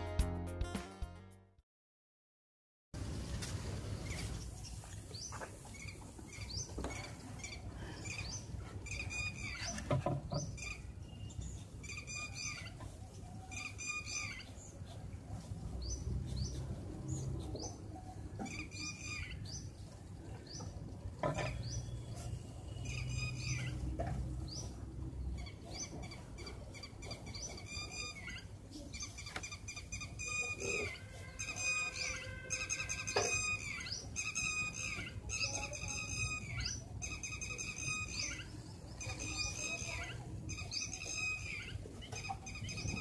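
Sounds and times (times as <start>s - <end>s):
birds chirping: 4.0s - 43.0s
repeated bird call phrase: 26.4s - 43.0s.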